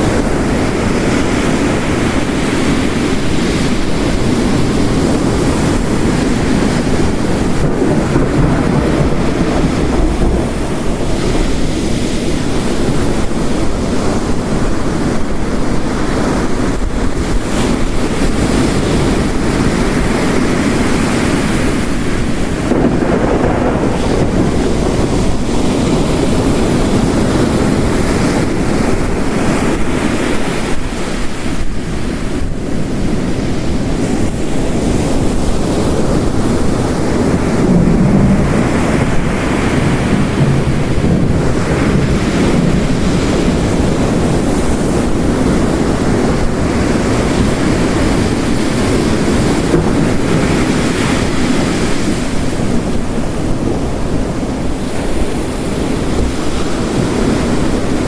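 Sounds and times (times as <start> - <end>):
heavy rain: 0.0 - 58.0
ocean waves crashing on rocks: 0.0 - 58.0.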